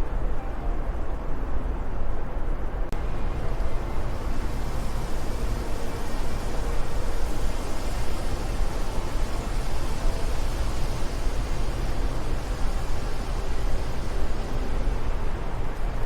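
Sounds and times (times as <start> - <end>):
wind rushing with low rumble: 0.0 - 16.0.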